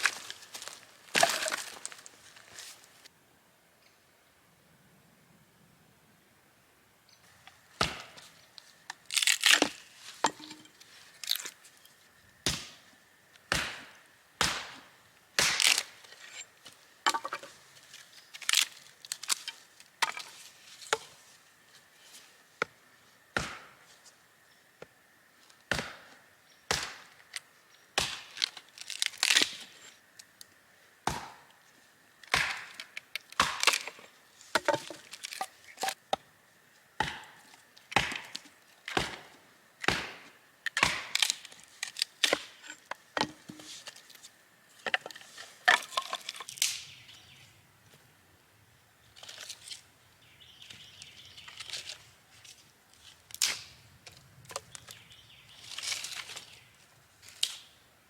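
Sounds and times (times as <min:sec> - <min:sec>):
axe chopping wood: 0:07.8 - 0:08.2, 0:12.4 - 0:12.8, 0:13.5 - 0:15.9, 0:23.4 - 0:23.8, 0:25.7 - 0:26.1, 0:26.7 - 0:27.1, 0:28.0 - 0:28.4, 0:31.0 - 0:31.5, 0:32.3 - 0:35.0, 0:37.0 - 0:37.4, 0:38.0 - 0:41.4.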